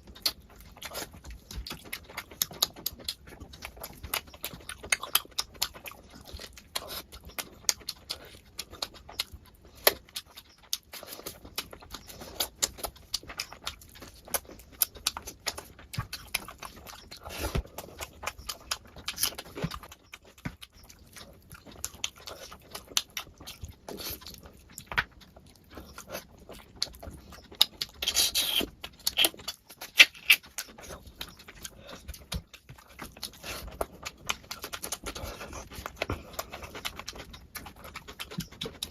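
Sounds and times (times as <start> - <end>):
person chewing food: 0.0 - 38.9
wet mouth smacking and clicking: 27.6 - 35.1.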